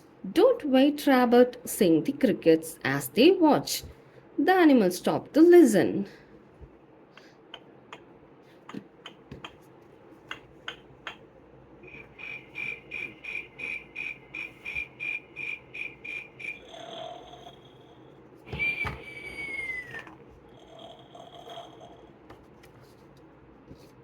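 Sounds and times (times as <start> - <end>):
recorded cricket chirping from speaker: 11.8 - 19.8.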